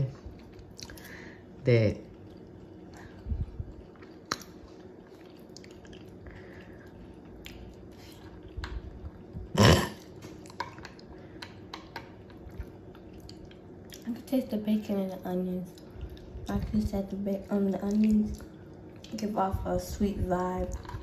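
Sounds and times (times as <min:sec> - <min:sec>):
faint steady hum: 0:00.0 - 0:21.0
person chewing food: 0:00.2 - 0:14.1, 0:15.7 - 0:16.6.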